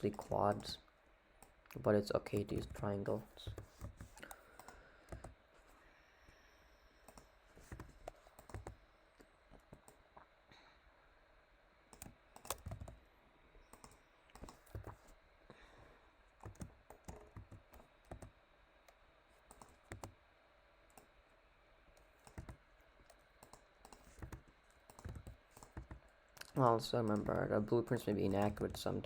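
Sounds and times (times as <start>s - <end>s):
computer mouse and keyboard clicking: 0.0s - 0.8s, 1.4s - 5.4s, 7.0s - 10.0s, 11.9s - 13.0s, 13.7s - 15.1s, 16.4s - 20.2s, 20.9s - 21.2s, 21.9s - 29.0s.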